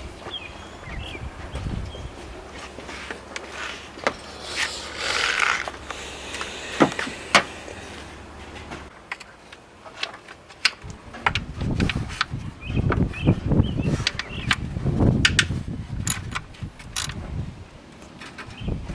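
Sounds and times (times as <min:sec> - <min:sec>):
rustling scrape: 0:01.4 - 0:10.3
plastic parts clicking: 0:16.1 - 0:17.2.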